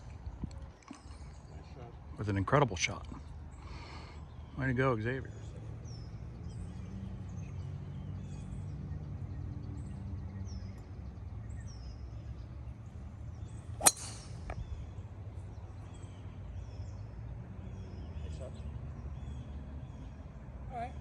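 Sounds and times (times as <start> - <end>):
birds chirping faintly: 0.0 - 21.0
golf club striking ball: 13.8 - 14.8.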